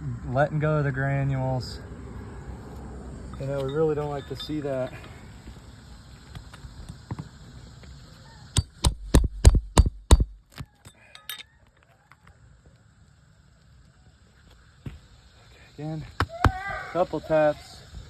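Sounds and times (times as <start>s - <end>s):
hammer striking metal tool: 3.4s - 4.9s, 8.6s - 10.4s.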